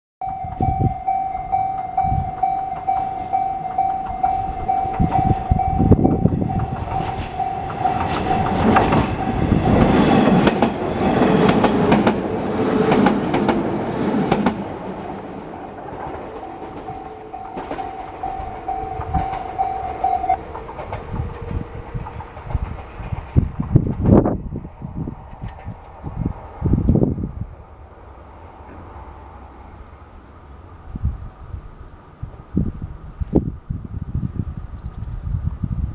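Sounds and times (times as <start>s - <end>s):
level crossing bell ringing: 0.2s - 10.1s, 16.4s - 20.6s
train wheels clacking on rail joints: 1.8s - 15.1s, 15.7s - 24.4s.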